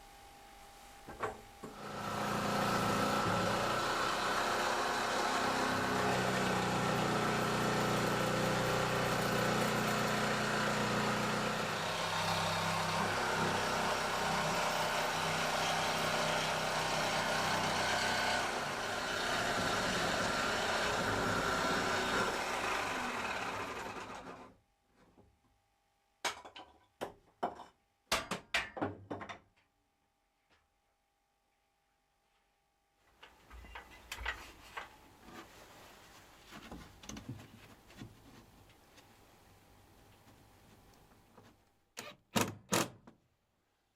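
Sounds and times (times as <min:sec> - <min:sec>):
power tool cutting: 0:01.8 - 0:24.5.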